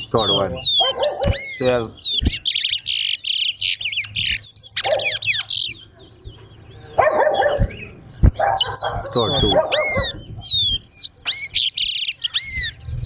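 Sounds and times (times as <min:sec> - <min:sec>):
finch singing: 0:00.0 - 0:13.0.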